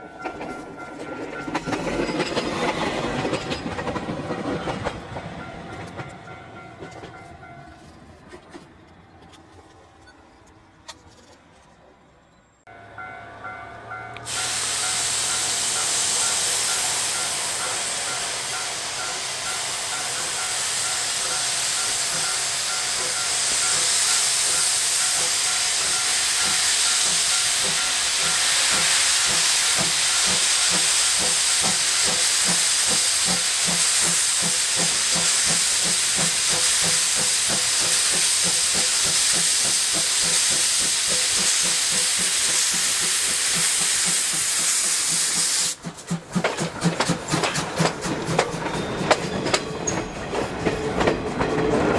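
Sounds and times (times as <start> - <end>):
locomotive exhaust beats: 13.7 - 51.9
steam locomotive hissing: 14.2 - 51.9.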